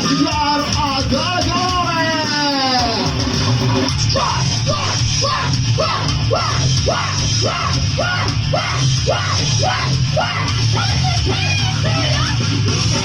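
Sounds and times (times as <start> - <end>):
live heavy metal music: 0.0 - 13.0
person yelling vocals: 4.1 - 12.4.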